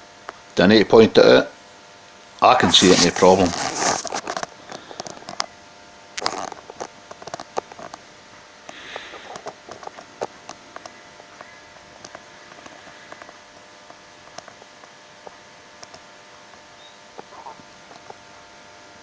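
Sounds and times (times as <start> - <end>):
soft rustle: 2.7 - 4.9
small clicks and taps: 6.2 - 8.0, 8.7 - 16.6.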